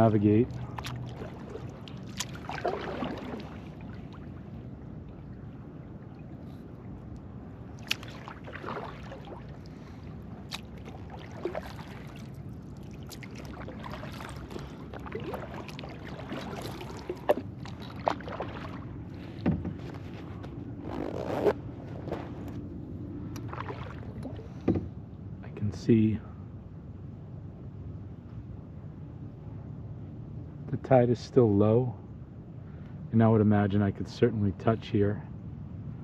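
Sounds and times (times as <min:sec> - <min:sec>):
paddle splashing and dripping: 0:00.0 - 0:20.5, 0:23.4 - 0:24.8.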